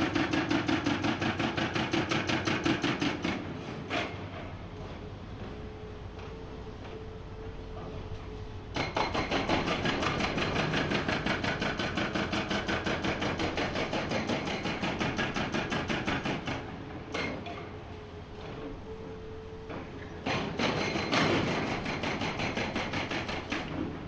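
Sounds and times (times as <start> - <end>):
hydraulic rock breaker hammering rock: 0.0 - 4.2, 8.7 - 17.6, 19.7 - 24.0.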